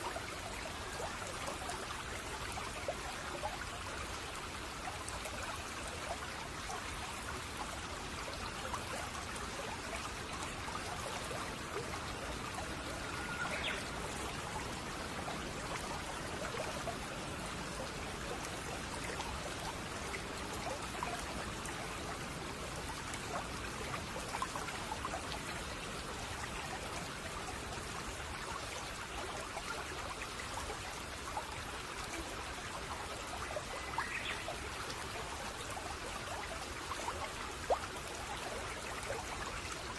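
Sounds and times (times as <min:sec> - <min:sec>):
brook babbling over stones: 0:00.0 - 0:39.9
faint bird chirps: 0:12.8 - 0:14.0.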